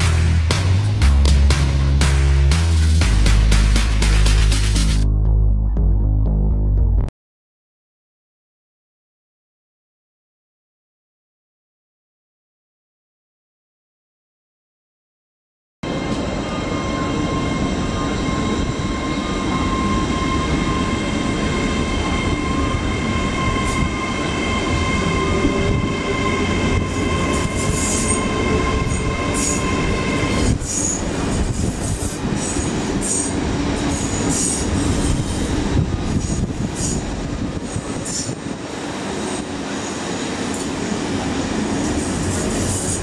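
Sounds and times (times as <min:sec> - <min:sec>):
train whine: 0:15.8 - 0:43.0
wheels squealing on rails: 0:15.9 - 0:43.0.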